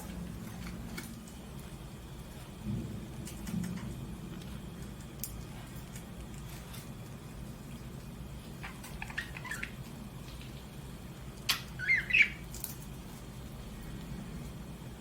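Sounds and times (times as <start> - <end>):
steady low hum: 0.0 - 15.0
budgerigar chirping: 8.6 - 9.8, 11.5 - 12.4.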